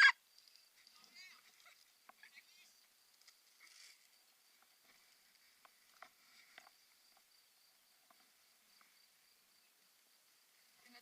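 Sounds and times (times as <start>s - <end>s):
faint ticks: 0.2s - 2.2s, 2.8s - 9.1s.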